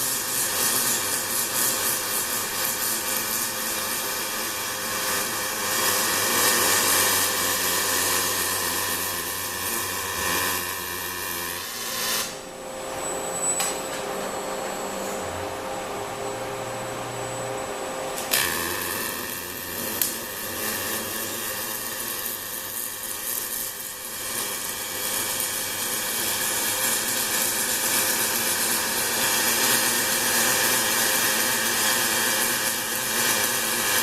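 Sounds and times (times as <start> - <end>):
welding arc strike: 0.0 - 12.5, 18.2 - 31.5
welding arc hissing and buzzing: 0.0 - 34.0
machine hum: 3.8 - 23.6.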